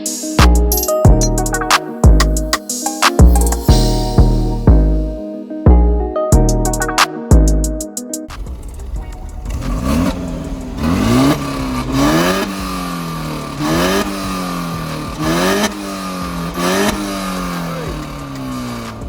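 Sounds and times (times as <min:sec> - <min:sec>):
car engine revving: 0:08.3 - 0:19.0.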